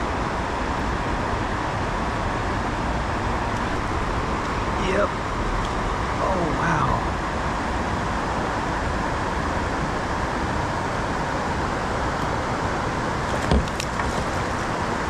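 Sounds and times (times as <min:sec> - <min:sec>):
river water flowing: 0:00.0 - 0:15.0
low thump: 0:13.4 - 0:14.3.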